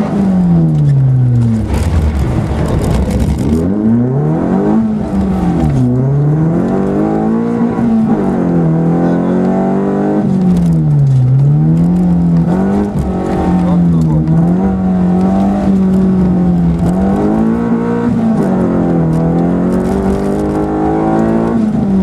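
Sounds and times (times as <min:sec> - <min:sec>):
rally car engine revving: 0:00.0 - 0:22.0
rush of noise: 0:01.3 - 0:06.6.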